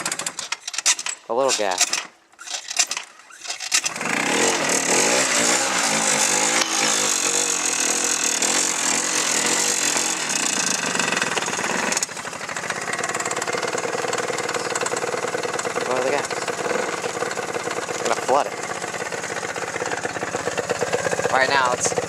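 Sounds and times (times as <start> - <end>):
engine cranking: 0.0 - 22.0
engine revving: 2.5 - 22.0.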